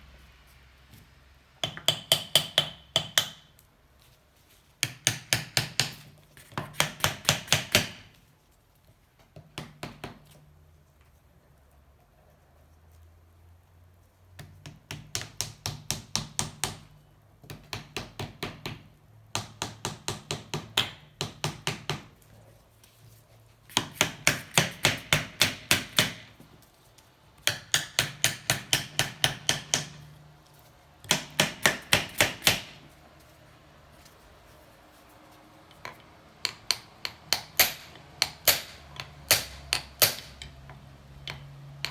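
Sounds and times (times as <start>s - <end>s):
hammer tapping metal wedges: 1.6s - 3.6s, 27.4s - 30.2s, 35.7s - 41.9s.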